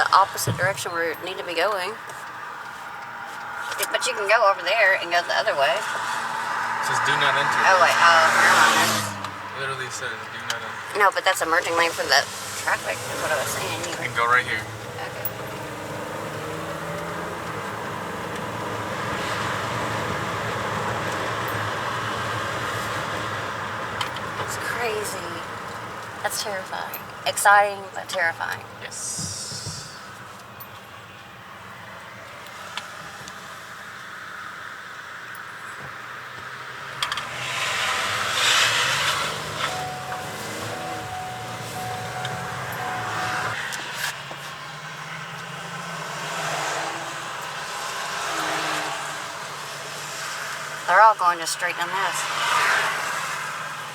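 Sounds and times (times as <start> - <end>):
road and engine noise in car cabin: 0.0 - 53.9
rushing hiss of passing vehicle: 12.2 - 14.6, 37.3 - 44.1
faint thin tone: 39.7 - 43.6.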